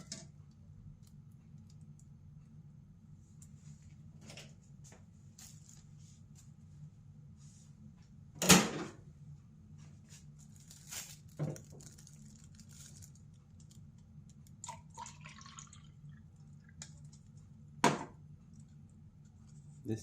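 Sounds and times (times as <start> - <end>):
steady low hum: 0.0 - 20.0
liquid dripping: 14.4 - 17.3.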